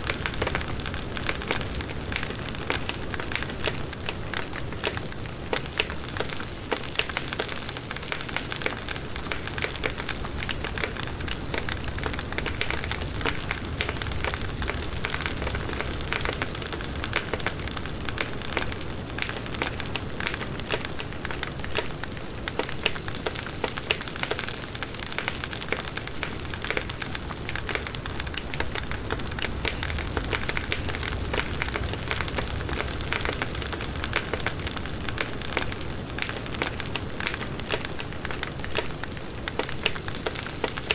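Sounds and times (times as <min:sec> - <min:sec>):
campfire crackling and popping: 0:00.0 - 0:40.9
flames rushing: 0:26.6 - 0:40.9.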